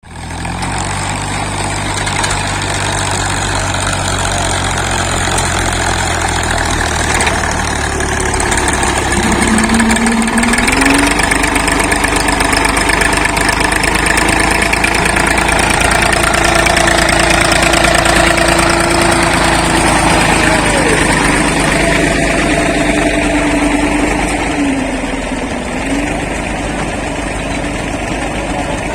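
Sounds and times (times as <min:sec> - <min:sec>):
diesel tractor engine running: 0:00.0 - 0:28.9
high machine whine: 0:08.9 - 0:12.4.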